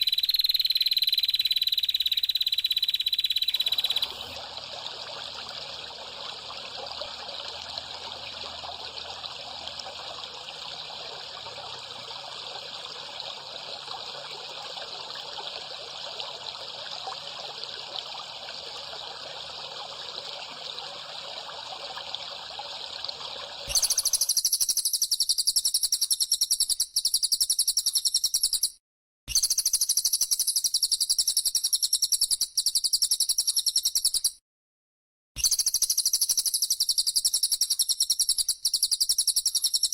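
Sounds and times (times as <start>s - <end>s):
faint bird chirps: 0.0s - 4.4s, 23.7s - 34.4s, 35.4s - 39.9s
recorded songbird trill: 0.0s - 4.4s, 23.7s - 34.4s, 35.4s - 39.9s
running water rushing: 3.6s - 24.2s.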